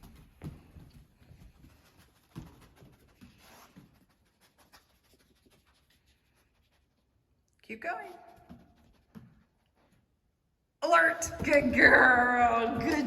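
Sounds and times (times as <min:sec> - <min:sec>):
footsteps on hard floor: 0:11.2 - 0:13.0.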